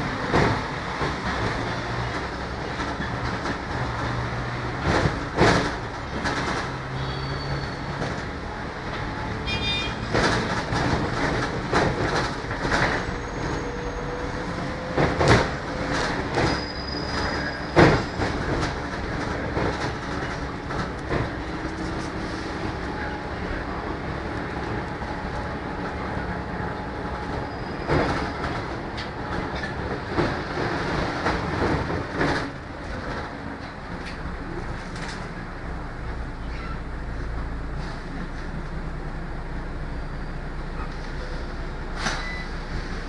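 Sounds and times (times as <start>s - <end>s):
bus body knocks and rattles: 0.0s - 7.0s, 7.9s - 13.2s, 14.7s - 35.4s
bus diesel engine running: 0.0s - 43.0s
road noise: 0.0s - 43.0s.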